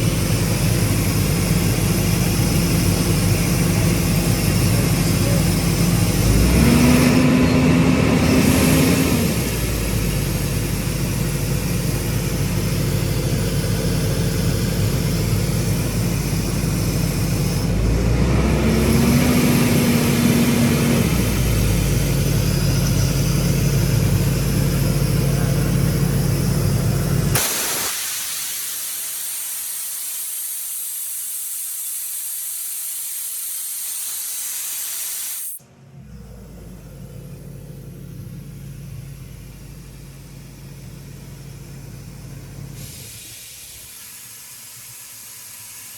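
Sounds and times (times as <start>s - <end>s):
diesel engine running: 0.0s - 27.4s, 35.6s - 45.9s
air hissing: 8.2s - 35.6s, 38.4s - 45.9s.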